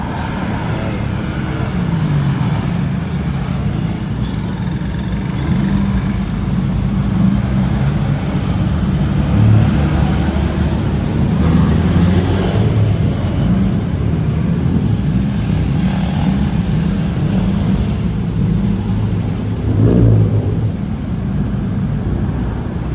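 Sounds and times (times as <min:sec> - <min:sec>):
car engines rumbling: 0:00.0 - 0:22.9.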